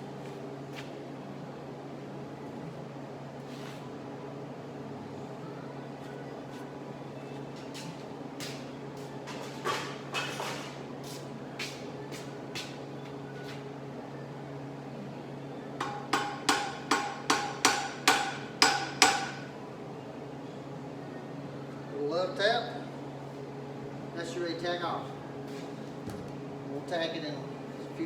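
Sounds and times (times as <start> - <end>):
hammer striking steel bar: 15.8 - 19.4.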